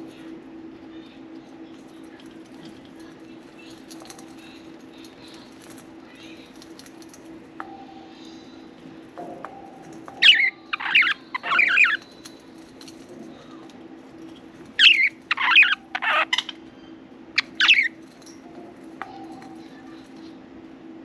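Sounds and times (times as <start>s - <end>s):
faint steady hum: 0.0s - 21.0s
budgerigars chirping harshly: 10.2s - 12.0s, 14.8s - 16.6s, 17.4s - 18.0s.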